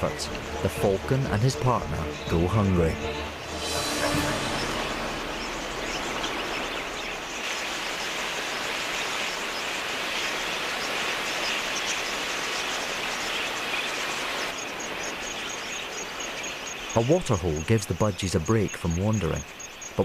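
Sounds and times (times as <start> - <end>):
flock of budgerigars chattering: 5.4 - 19.9.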